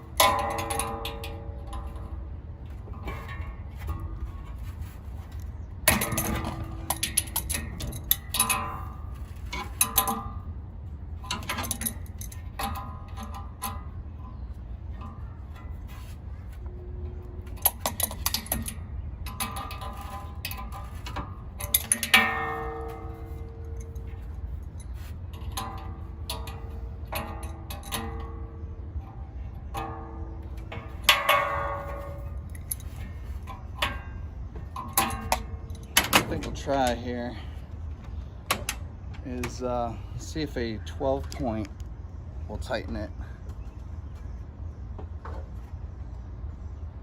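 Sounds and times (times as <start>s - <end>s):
metal tools clinking on metal: 0.0s - 2.3s, 2.9s - 10.5s, 11.1s - 37.6s
low hum: 0.0s - 47.0s.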